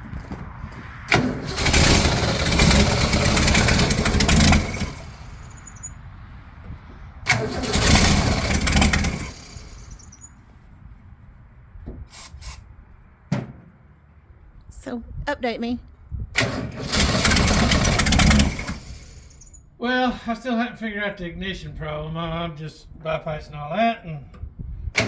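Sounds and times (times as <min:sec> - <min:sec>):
car engine cranking and firing: 0:01.0 - 0:06.0, 0:07.2 - 0:10.3, 0:16.3 - 0:19.6.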